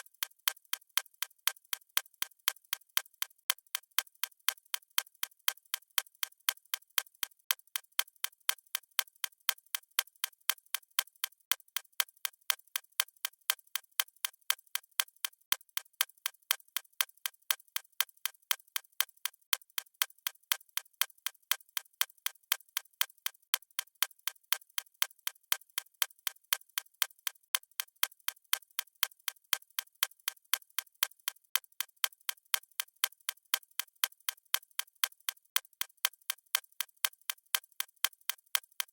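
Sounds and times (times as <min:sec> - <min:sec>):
clock ticking: 0:31.5 - 0:38.9.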